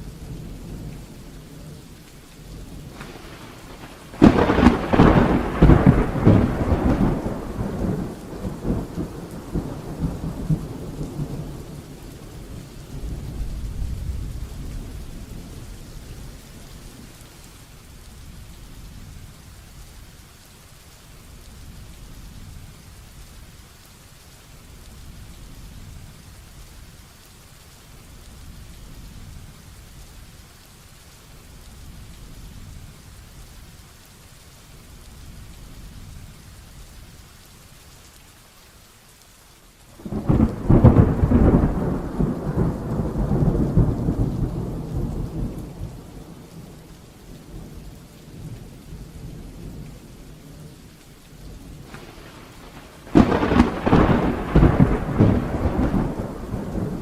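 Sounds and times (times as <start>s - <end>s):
heavy rain falling: 0.0s - 57.0s
thunder rolling: 2.6s - 11.8s, 40.0s - 46.8s, 51.8s - 57.0s.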